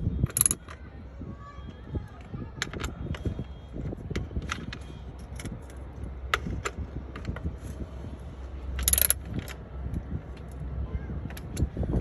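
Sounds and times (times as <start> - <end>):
hand tools and metal clinking: 0.2 - 0.8, 8.7 - 10.6
low steady rumble: 3.5 - 12.0.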